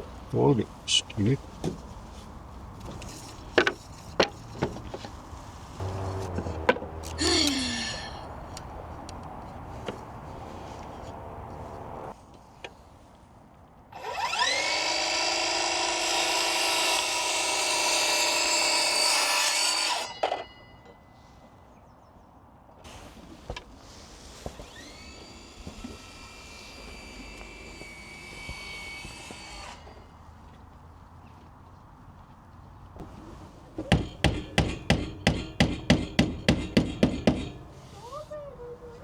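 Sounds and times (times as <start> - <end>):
light knocks: 5.8 - 7.2
power tool motor running: 5.8 - 9.0.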